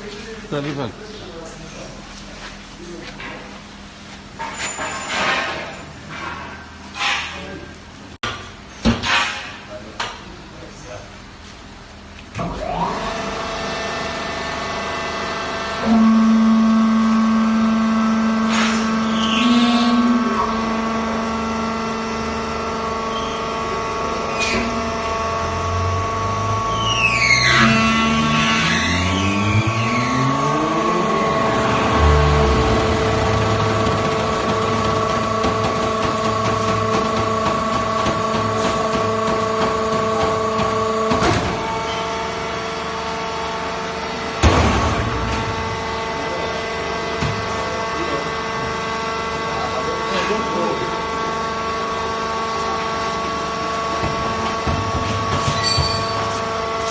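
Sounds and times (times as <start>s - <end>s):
baler machine motor hum: 12.8s - 56.9s.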